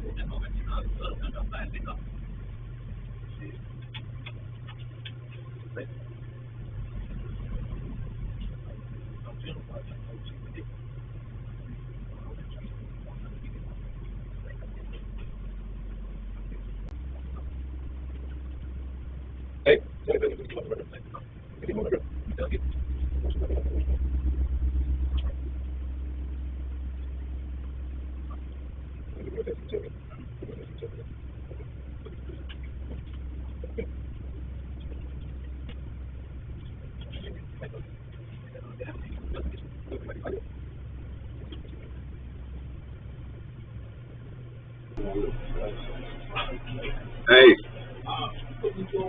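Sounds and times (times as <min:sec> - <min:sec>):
low hum: 0:00.0 - 0:49.0
faint clicks and knocks: 0:02.9 - 0:06.2.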